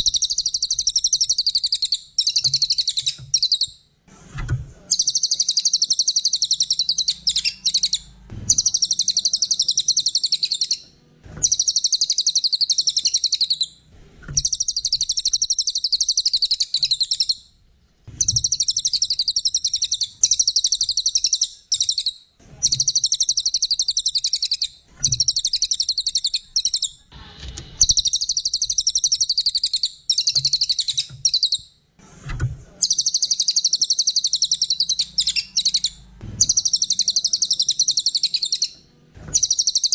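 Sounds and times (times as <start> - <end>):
songbird trilling: 4.9 - 10.8, 11.4 - 13.7, 14.4 - 17.4, 18.2 - 26.9, 27.8 - 31.6, 32.8 - 38.8, 39.4 - 39.9.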